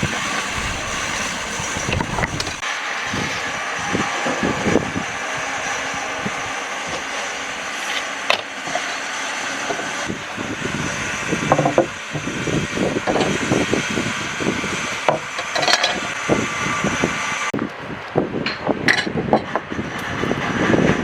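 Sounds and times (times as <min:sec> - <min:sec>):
tool scraping dry wood: 0:00.0 - 0:02.6.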